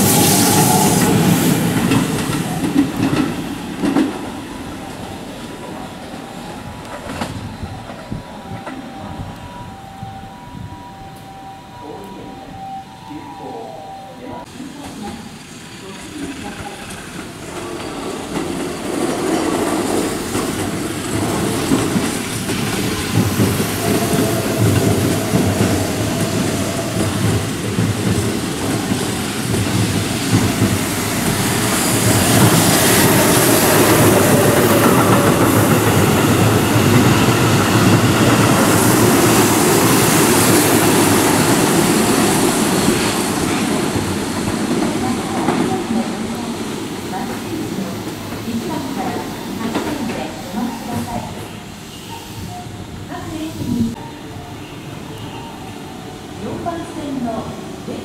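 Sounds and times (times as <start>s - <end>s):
faint train whine: 0.0s - 44.4s
train wheels clattering: 16.0s - 51.4s.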